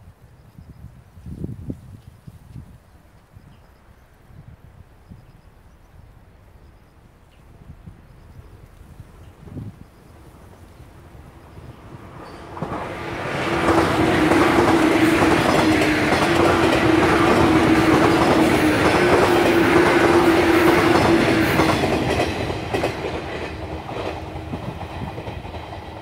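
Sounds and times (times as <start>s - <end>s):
train motor hum: 2.9s - 26.0s
train wheels clattering over rail joints: 11.5s - 26.0s.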